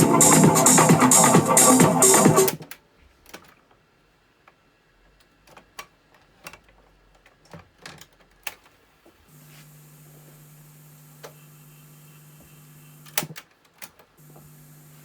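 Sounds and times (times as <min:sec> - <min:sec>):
low hum with hiss: 0:09.2 - 0:13.2, 0:14.2 - 0:15.0.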